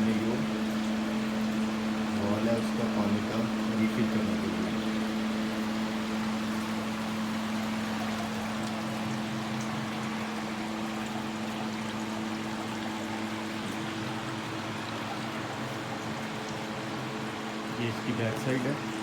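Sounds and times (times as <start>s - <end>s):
fan motor humming: 0.0s - 19.0s
water trickling: 0.0s - 19.0s.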